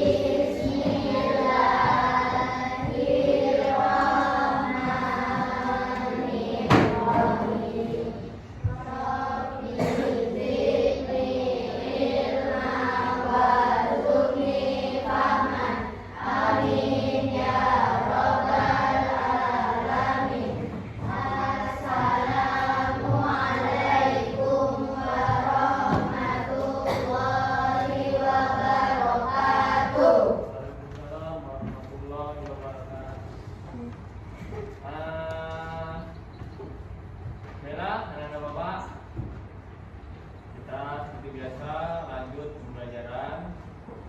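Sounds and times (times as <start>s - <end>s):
children chanting a prayer: 0.0s - 36.1s.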